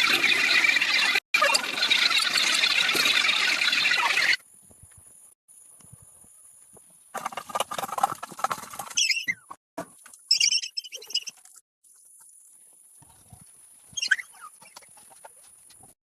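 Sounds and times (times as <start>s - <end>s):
poultry chirping: 14.0s - 15.3s.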